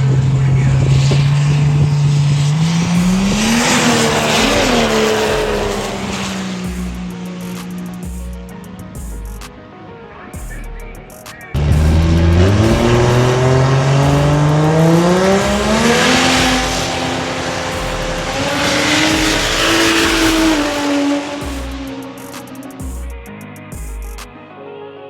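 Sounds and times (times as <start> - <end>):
truck engine at full throttle: 0.0 - 8.5, 11.6 - 22.7.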